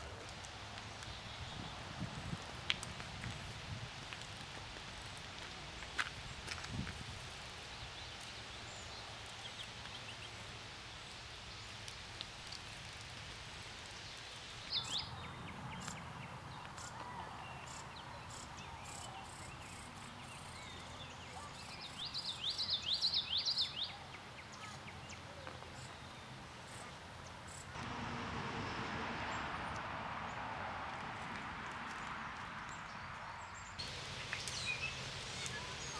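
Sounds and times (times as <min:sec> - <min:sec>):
outdoor background hiss: 0:00.0 - 0:30.9, 0:33.0 - 0:35.9.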